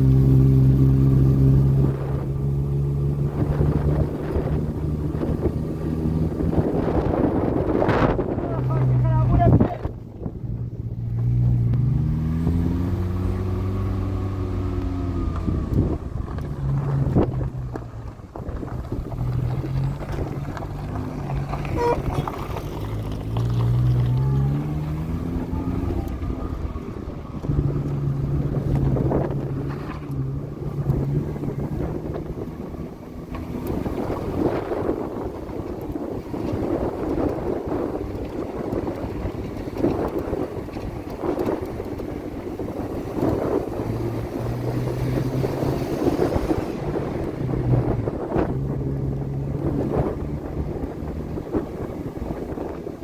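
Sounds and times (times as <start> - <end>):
vehicle engine speeding up and slowing: 0.0 - 53.0.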